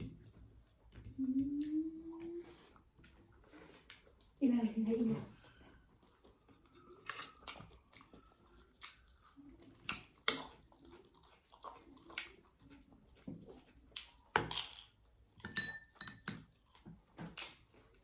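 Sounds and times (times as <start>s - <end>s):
chewing and mouth sounds: 5.3s - 15.2s
utensils clinking on plates: 15.4s - 16.4s.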